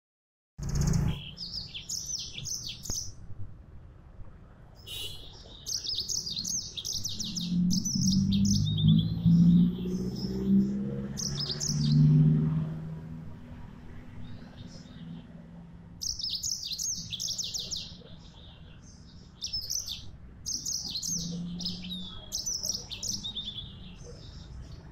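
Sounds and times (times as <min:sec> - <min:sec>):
canary singing: 0:00.6 - 0:03.2, 0:04.8 - 0:12.2, 0:16.0 - 0:24.9.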